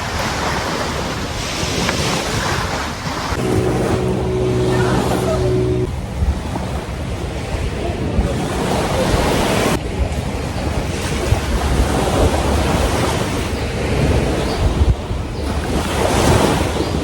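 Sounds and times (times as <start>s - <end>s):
sea waves washing on beach: 0.0s - 6.1s
wind buffeting microphone: 0.0s - 17.0s.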